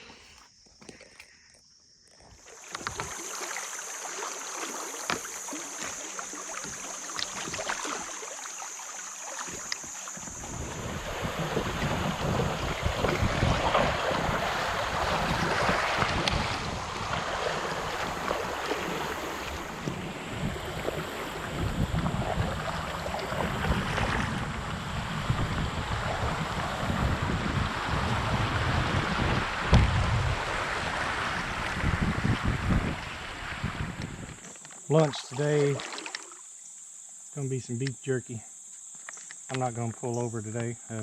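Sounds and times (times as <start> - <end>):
creek water rushing and splashing: 2.4 - 36.6
wind buffeting microphone: 10.2 - 34.4.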